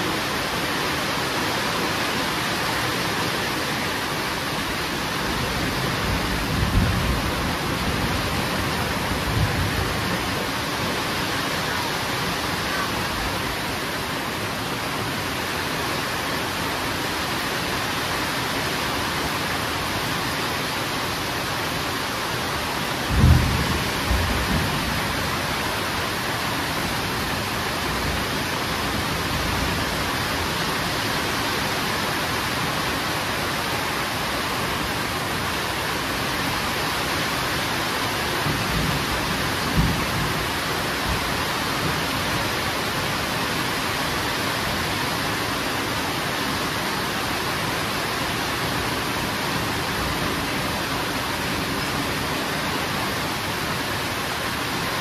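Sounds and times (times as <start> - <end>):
heavy rain: 0.0 - 55.0
thunder rumble: 5.9 - 10.2, 23.1 - 25.6.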